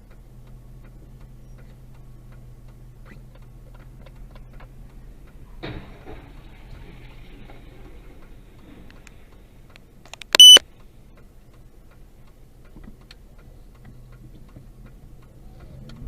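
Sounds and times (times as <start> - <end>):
low in-car hum: 0.0 - 16.0
short electronic beep: 10.3 - 10.6.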